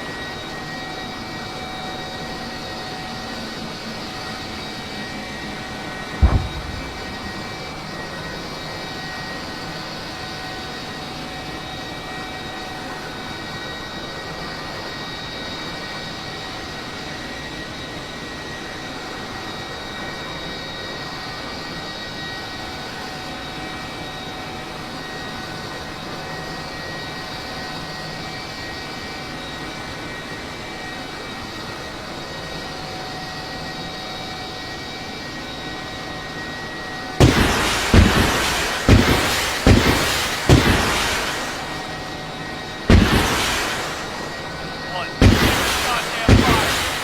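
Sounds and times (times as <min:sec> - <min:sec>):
aircraft engine drone: 0:00.0 - 0:15.8, 0:36.1 - 0:47.0
whining tones: 0:06.0 - 0:08.4
loud sharp blasts with echo: 0:06.1 - 0:08.2, 0:37.2 - 0:47.0.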